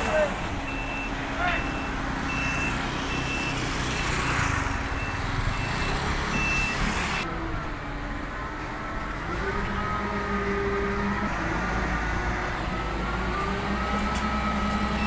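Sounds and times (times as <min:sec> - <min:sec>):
diesel engine running: 0:00.0 - 0:15.0
reversing alarm beeps: 0:00.7 - 0:07.2.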